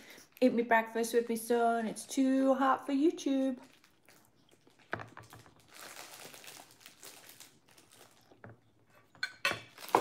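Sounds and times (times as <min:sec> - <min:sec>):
crunchy chewing of toast: 0:03.6 - 0:08.9.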